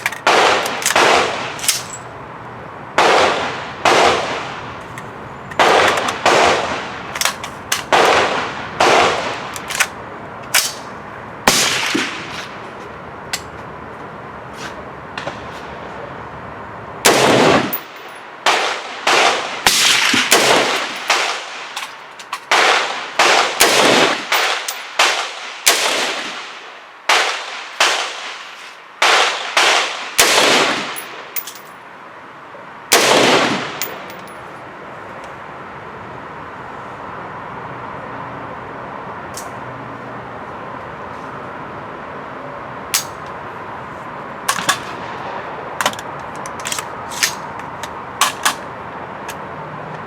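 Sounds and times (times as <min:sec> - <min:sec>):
rifle gunshots with echo: 0:00.0 - 0:02.0, 0:03.0 - 0:04.7, 0:05.5 - 0:09.9, 0:18.4 - 0:21.8, 0:22.5 - 0:28.4, 0:29.0 - 0:31.2, 0:32.9 - 0:33.9
steady background hum: 0:00.0 - 0:50.0.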